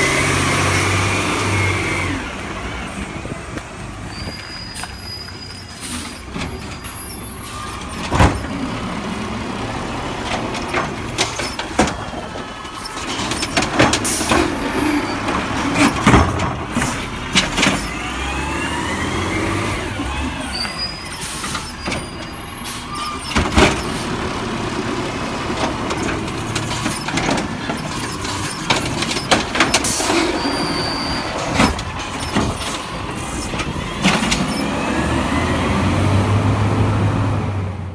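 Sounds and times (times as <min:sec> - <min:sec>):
diesel truck engine: 0:00.0 - 0:37.9
air brake hisses: 0:04.7 - 0:06.2.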